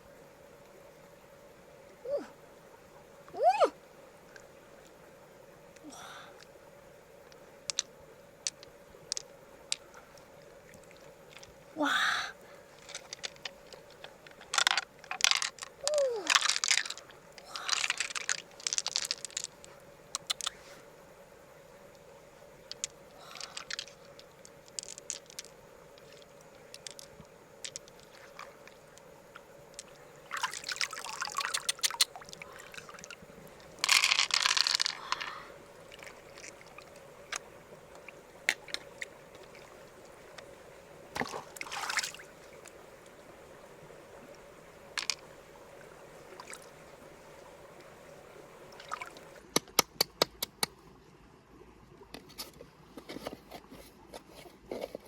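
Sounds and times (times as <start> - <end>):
faint steady hum: 0.0 - 55.0
water pouring and splashing: 12.7 - 20.8, 22.7 - 29.1, 29.7 - 40.5, 41.1 - 43.2, 44.9 - 49.4.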